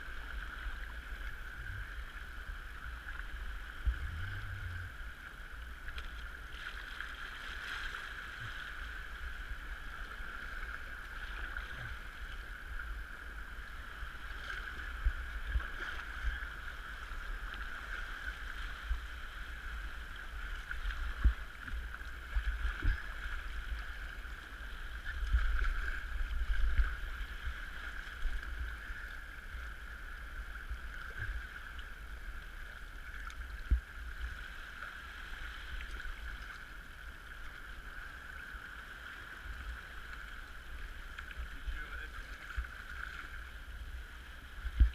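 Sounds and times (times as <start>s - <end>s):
water washing along kayak hull: 0.0s - 44.9s
low rumble: 0.5s - 6.5s.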